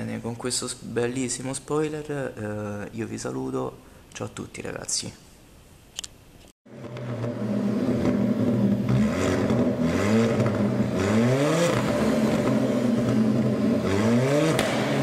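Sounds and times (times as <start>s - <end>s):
car engine revving: 6.7s - 15.0s.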